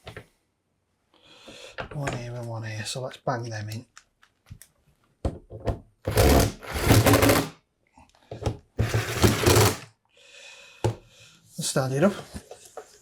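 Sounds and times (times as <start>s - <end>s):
power driver running screws: 6.1s - 7.5s, 8.9s - 9.8s.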